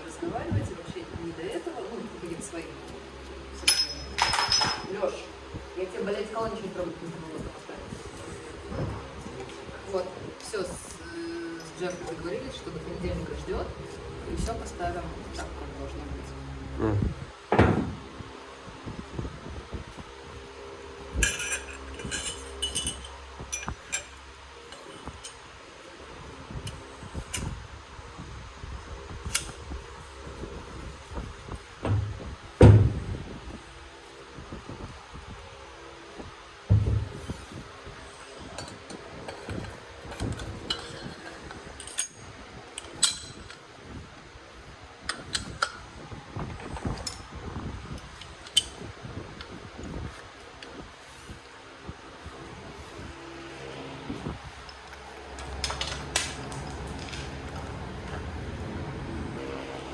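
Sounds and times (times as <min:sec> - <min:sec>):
low steady hum: 0:00.0 - 0:59.9
metallic clinks of tools: 0:03.6 - 0:04.9, 0:21.2 - 0:24.1, 0:55.4 - 0:57.4
metal tools clinking and knocking: 0:03.6 - 0:05.0, 0:11.5 - 0:12.5, 0:21.2 - 0:25.4, 0:38.6 - 0:43.6, 0:55.4 - 0:57.8.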